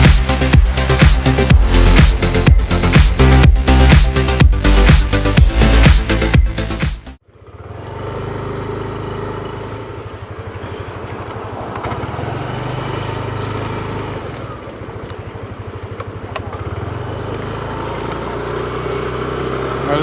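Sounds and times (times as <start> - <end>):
road noise: 0.0 - 20.0
vehicle engine running: 0.0 - 20.0.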